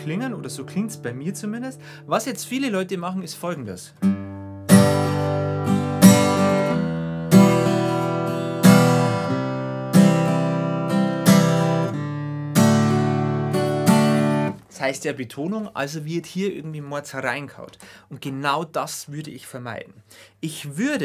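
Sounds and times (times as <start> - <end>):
acoustic guitar strumming: 0.0 - 2.6, 4.0 - 14.6.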